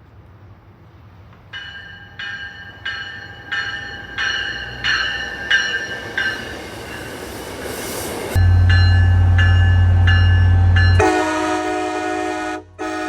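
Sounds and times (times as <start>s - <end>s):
railway bell ringing: 1.5s - 7.7s, 8.3s - 12.3s.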